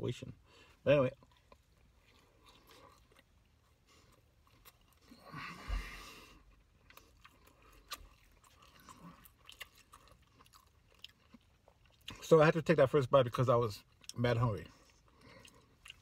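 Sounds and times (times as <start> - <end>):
person chewing a sandwich: 0.4 - 12.6, 13.8 - 16.0
wet chewing clicks: 6.5 - 12.2, 13.8 - 16.0.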